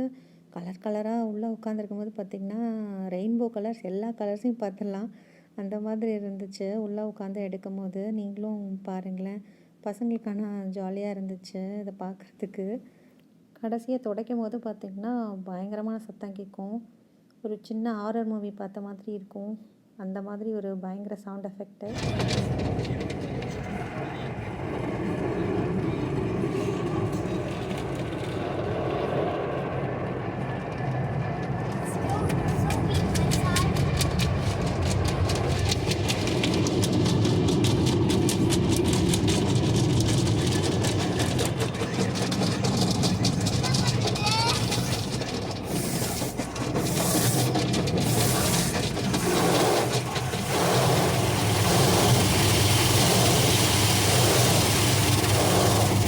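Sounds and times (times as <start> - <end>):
car wash dryer drone: 21.9 - 56.0.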